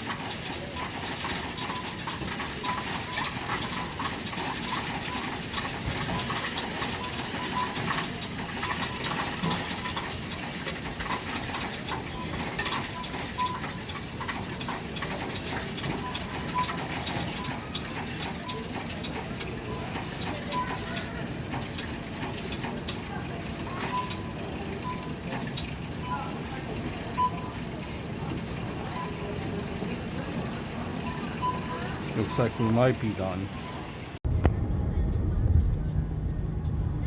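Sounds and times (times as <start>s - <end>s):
coins rattling through machine: 0.0s - 33.7s
short beeps: 12.0s - 13.8s, 23.7s - 25.2s, 27.2s - 27.6s, 31.0s - 33.9s.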